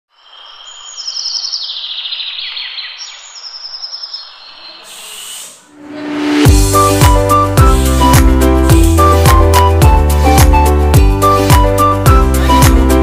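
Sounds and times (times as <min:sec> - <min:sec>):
small birds chirping: 0:00.1 - 0:05.6
short hiss: 0:04.8 - 0:05.8.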